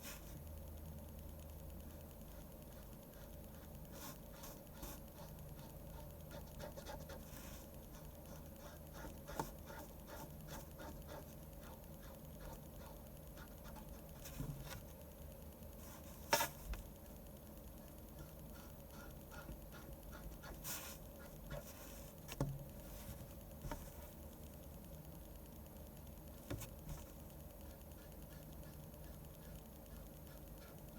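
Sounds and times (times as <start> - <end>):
pen scratching on paper: 2.3 - 14.9, 18.2 - 24.0.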